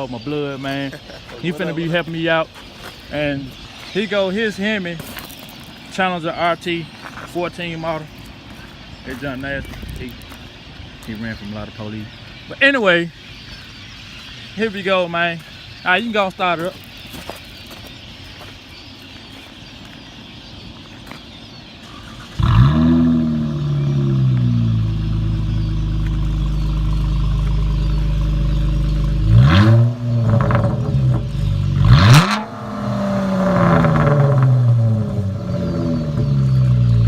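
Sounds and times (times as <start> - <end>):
car engine starting and idling: 21.8 - 37.0
car engine revving: 21.9 - 37.0.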